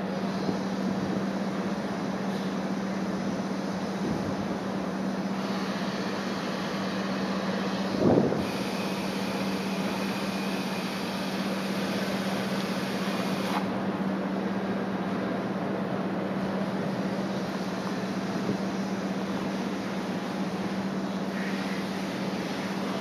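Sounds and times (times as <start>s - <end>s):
steady low hum: 0.0s - 23.0s
strong wind on microphone: 7.9s - 8.5s.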